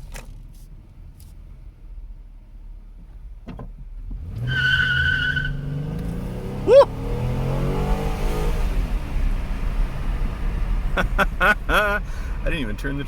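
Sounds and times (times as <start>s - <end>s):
road noise: 0.0s - 13.0s
car engine revving: 4.0s - 12.4s
tires squealing: 4.2s - 7.1s.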